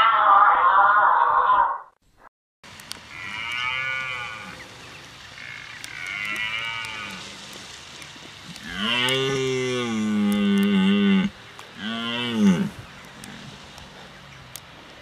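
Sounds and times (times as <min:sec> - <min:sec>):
deer stag roaring: 0:03.1 - 0:04.6, 0:05.4 - 0:07.3, 0:08.6 - 0:13.6.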